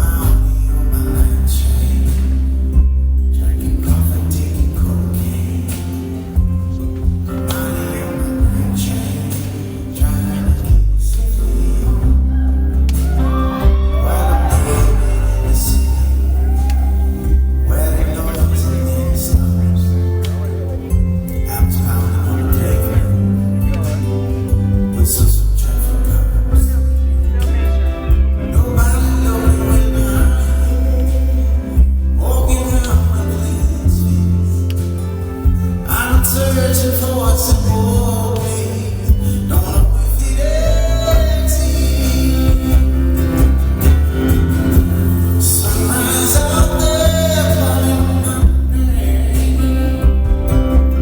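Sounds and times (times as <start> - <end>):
live band instrumental music: 0.0 - 51.0
man singing long notes: 0.0 - 51.0.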